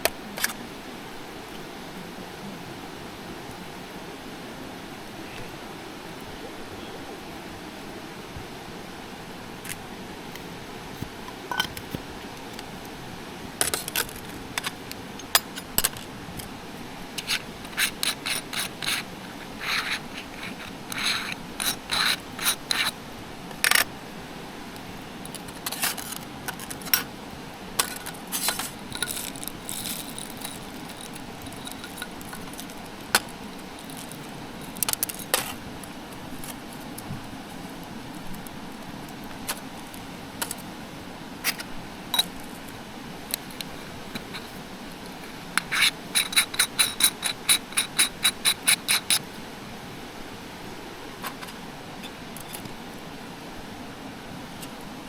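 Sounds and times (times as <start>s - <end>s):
steady background hiss: 0.0s - 55.0s
light metallic clinks and scrapes: 11.4s - 12.6s, 17.2s - 23.0s, 27.8s - 35.6s, 43.3s - 45.0s, 45.6s - 49.2s.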